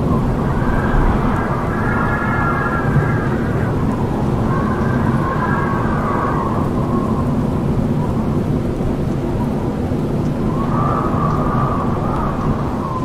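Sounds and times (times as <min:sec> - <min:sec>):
wind howling: 0:00.0 - 0:08.1
wind whistling: 0:00.0 - 0:08.6, 0:10.2 - 0:13.0.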